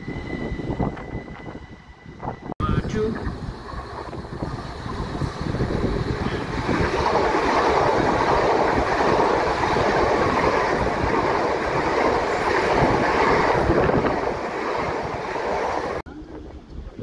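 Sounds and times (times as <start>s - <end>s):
train wheels rushing on rails: 0.0s - 16.0s.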